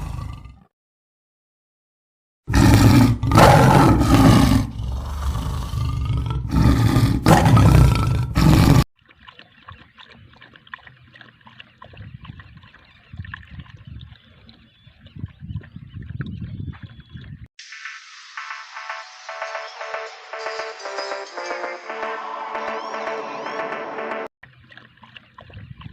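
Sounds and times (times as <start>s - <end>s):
tiger roaring: 0.0s - 0.7s, 2.5s - 8.8s.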